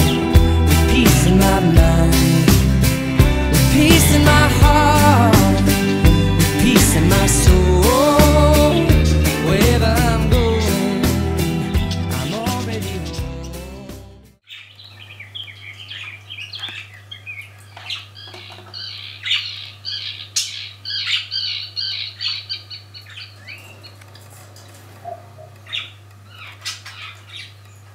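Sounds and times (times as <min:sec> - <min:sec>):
budgerigars chattering: 0:14.5 - 0:24.0, 0:25.0 - 0:27.6.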